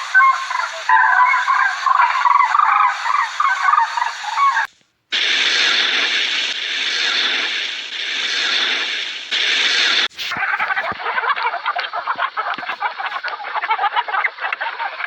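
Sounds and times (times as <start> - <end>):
fowl honking calls: 0.0 - 4.7.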